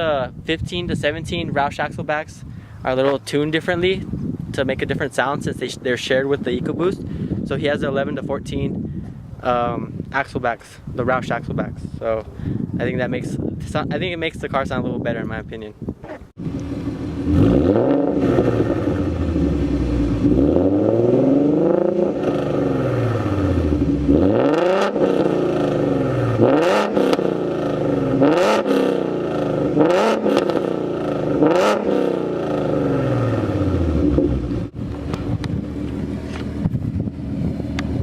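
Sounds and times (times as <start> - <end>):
car engine revving: 16.4 - 38.0.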